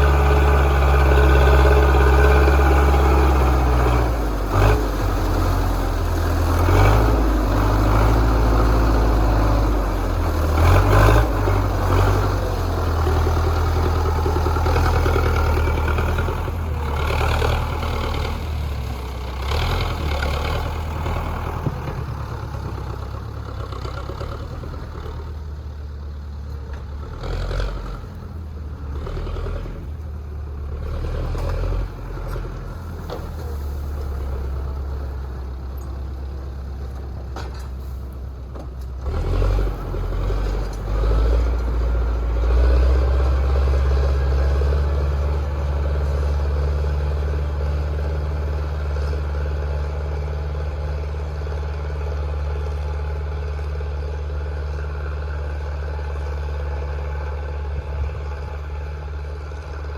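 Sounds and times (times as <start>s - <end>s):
tractor diesel engine droning: 0.0s - 59.9s
clunks: 31.3s - 39.1s.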